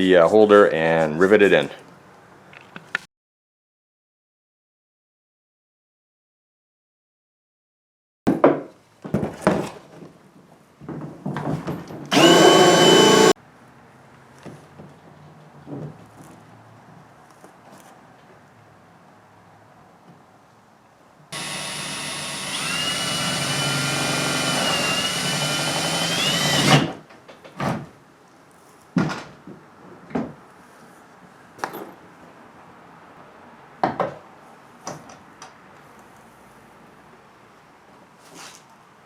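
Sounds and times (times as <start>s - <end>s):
shop vac whining: 12.1s - 13.4s, 21.4s - 26.9s.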